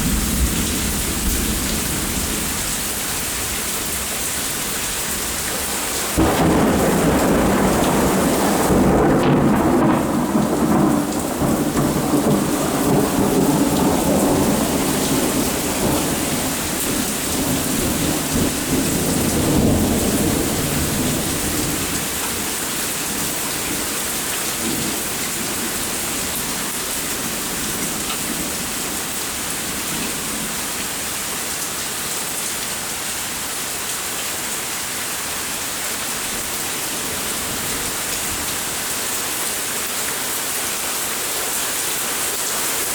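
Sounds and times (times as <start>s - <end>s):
thunder rumbling: 0.0s - 23.9s
steady rain falling: 0.0s - 42.9s.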